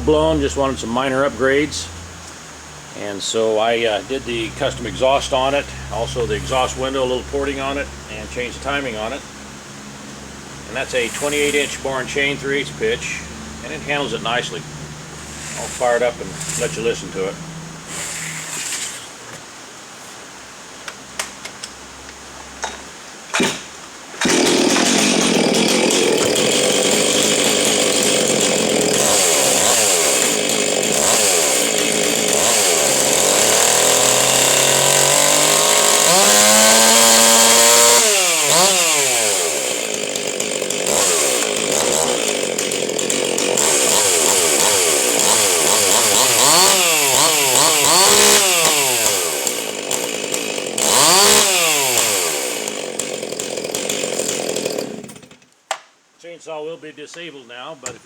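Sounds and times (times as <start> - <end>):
chainsaw running and revving: 3.9 - 18.5, 24.2 - 55.4.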